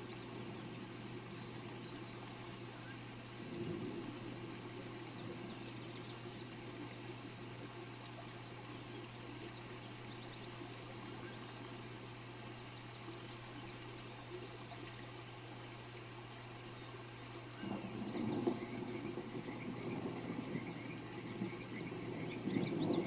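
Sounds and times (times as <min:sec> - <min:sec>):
faint bird chirps: 0:00.0 - 0:03.8, 0:07.9 - 0:15.1, 0:16.4 - 0:23.0
steady rain falling: 0:00.0 - 0:23.0.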